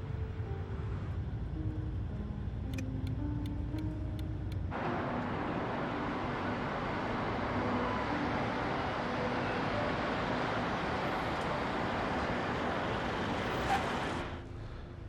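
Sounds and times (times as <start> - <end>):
low road rumble: 0.0 - 15.0
hiss of street traffic: 4.7 - 15.0.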